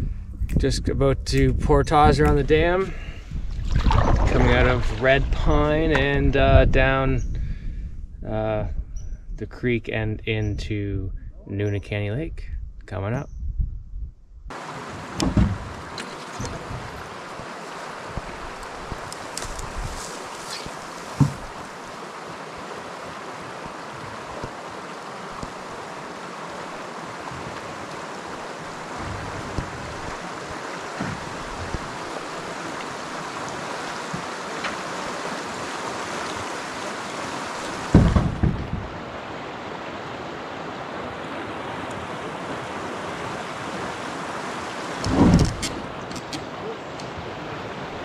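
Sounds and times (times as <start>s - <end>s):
wind buffeting microphone: 0.0s - 14.5s, 15.3s - 17.3s, 18.0s - 20.1s, 37.8s - 39.2s
rushing water: 3.5s - 6.1s, 14.5s - 48.0s.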